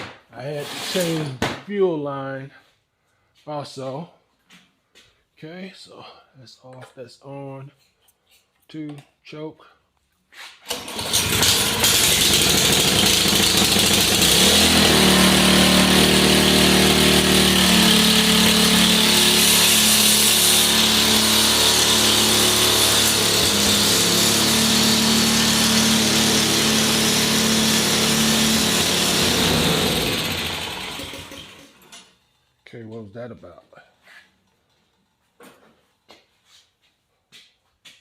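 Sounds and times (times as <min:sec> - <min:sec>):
snowblower engine starting and running: 0:00.8 - 0:01.2, 0:10.7 - 0:32.6.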